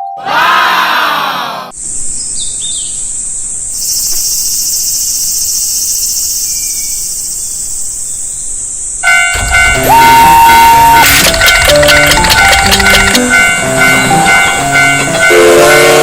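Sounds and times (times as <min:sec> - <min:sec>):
insects chirring: 0:01.8 - 0:09.7.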